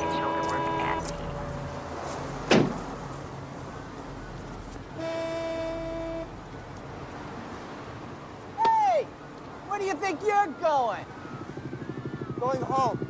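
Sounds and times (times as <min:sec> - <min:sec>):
car horn honk: 0:00.0 - 0:01.2, 0:05.0 - 0:06.4
low hum of traffic: 0:00.0 - 0:13.0.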